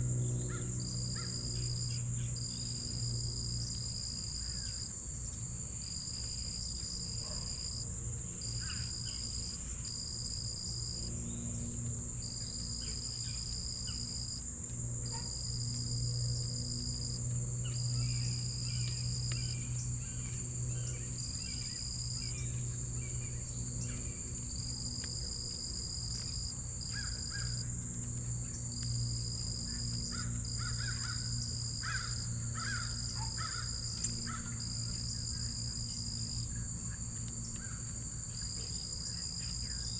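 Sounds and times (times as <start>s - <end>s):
crickets trilling: 0.0s - 39.9s
low hum: 0.0s - 39.9s.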